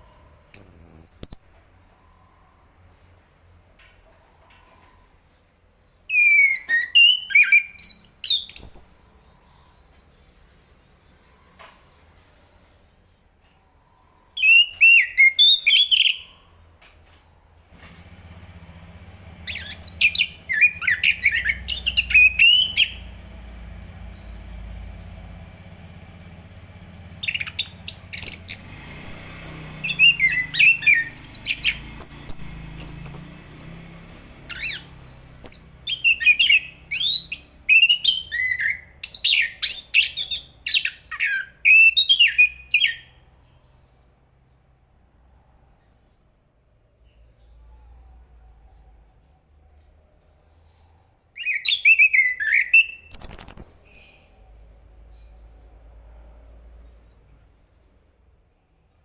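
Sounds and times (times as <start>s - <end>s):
faint low hum: 16.3s - 29.6s, 43.4s - 51.4s
thrush singing: 17.8s - 40.2s.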